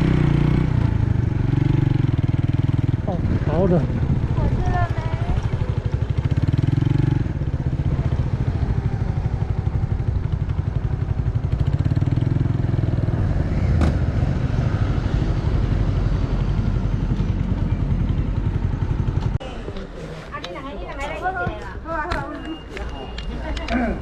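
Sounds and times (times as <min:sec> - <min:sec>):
motorcycle engine running: 0:00.0 - 0:13.5, 0:14.2 - 0:19.4.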